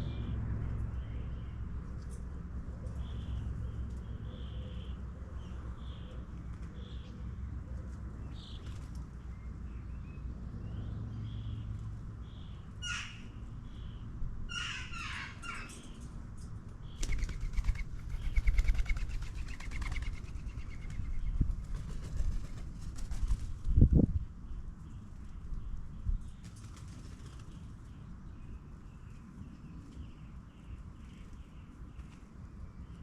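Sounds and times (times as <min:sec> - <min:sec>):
low background rumble: 0:00.0 - 0:33.0
birds chirping: 0:16.8 - 0:21.5
fluttering wing beats: 0:16.9 - 0:24.0.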